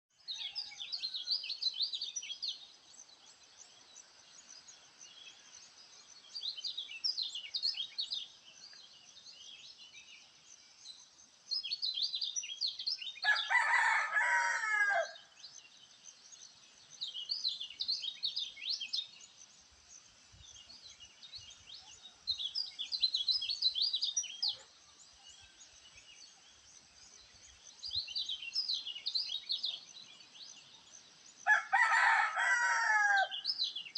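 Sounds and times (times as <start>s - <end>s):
songbird chirping: 0.0s - 33.9s
rooster crowing: 13.2s - 15.2s, 31.5s - 33.4s.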